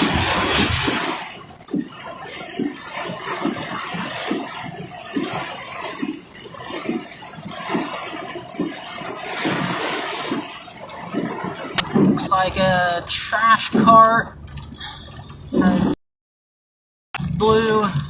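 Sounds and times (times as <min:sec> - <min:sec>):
heavy rain lashing a vehicle: 0:00.0 - 0:01.9.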